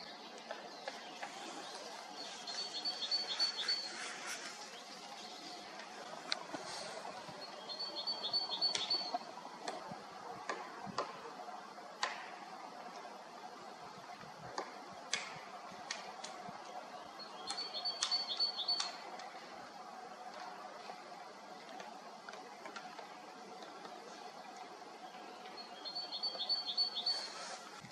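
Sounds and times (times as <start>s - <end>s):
small bird chirping: 1.2s - 5.3s, 7.5s - 9.2s, 25.6s - 27.6s
faint sharp clicks: 5.7s - 6.8s, 17.4s - 19.4s.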